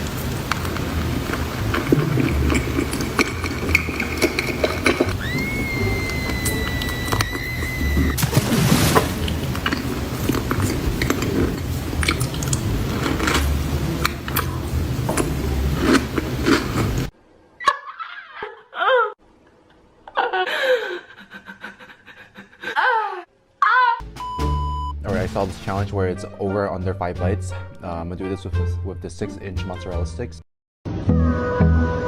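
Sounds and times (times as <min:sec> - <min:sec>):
dense crackling with clicks: 0:00.0 - 0:05.4, 0:09.2 - 0:14.5.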